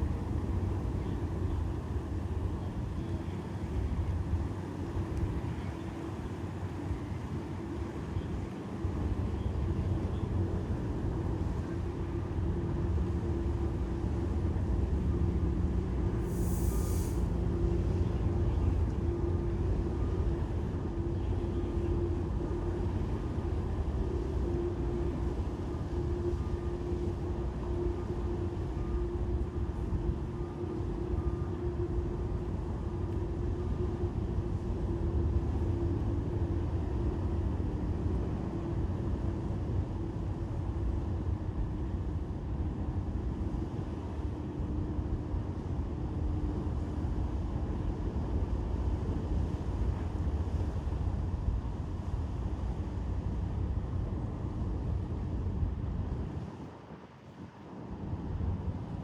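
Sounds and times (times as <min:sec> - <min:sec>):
machinery hum: 0:15.4 - 0:39.5
brief hiss: 0:16.2 - 0:17.4.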